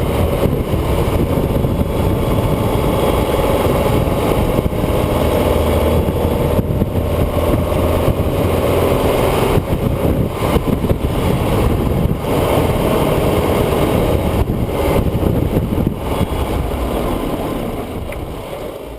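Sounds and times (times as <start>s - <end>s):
road and wind noise: 0.0s - 18.9s
vehicle engine running: 0.0s - 18.9s.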